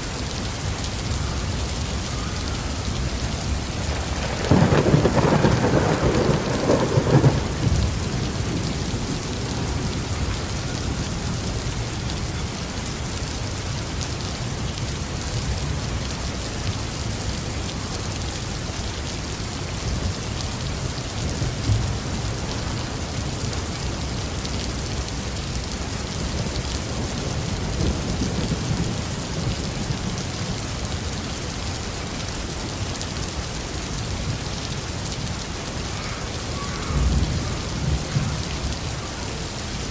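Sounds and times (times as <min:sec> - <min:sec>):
heavy rain on a roof: 0:00.0 - 0:39.9
thunder rumbling: 0:03.1 - 0:11.5, 0:35.8 - 0:39.9.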